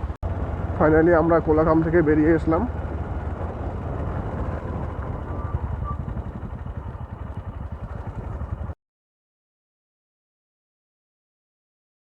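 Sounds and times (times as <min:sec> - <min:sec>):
motorcycle engine running: 0:00.0 - 0:08.8
road noise: 0:00.0 - 0:08.8.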